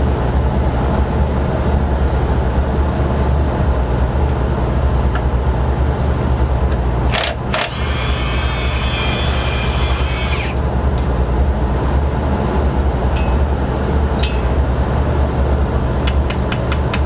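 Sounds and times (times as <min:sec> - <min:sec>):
low mechanical hum: 0:00.0 - 0:17.0
sharp metallic clicks of tools: 0:07.1 - 0:08.4.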